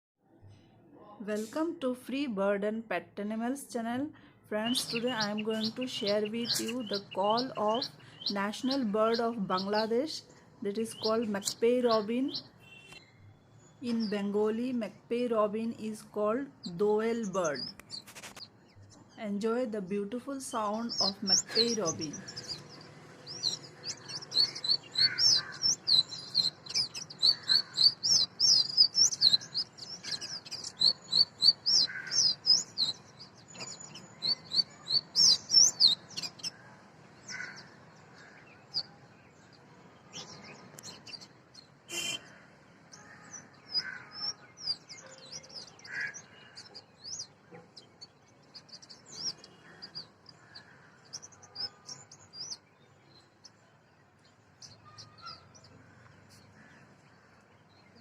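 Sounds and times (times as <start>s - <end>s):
bird singing whistled notes: 41.9s - 42.2s.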